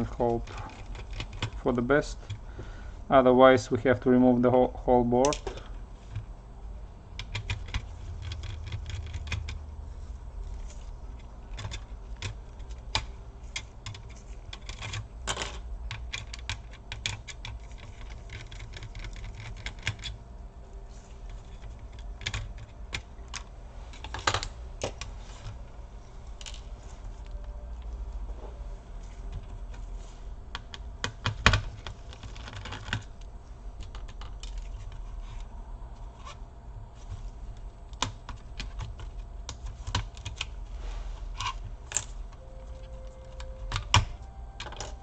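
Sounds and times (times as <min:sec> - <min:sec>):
laptop parts clicking and tapping: 0:00.1 - 0:02.4, 0:07.2 - 0:09.6, 0:10.5 - 0:20.2, 0:21.3 - 0:25.6, 0:30.5 - 0:33.2, 0:33.8 - 0:35.1, 0:37.5 - 0:40.6, 0:41.4 - 0:45.0.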